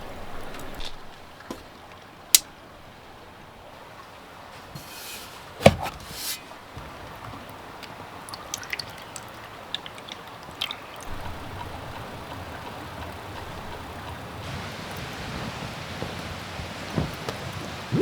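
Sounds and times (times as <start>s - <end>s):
soft liquid sounds: 6.2s - 12.3s.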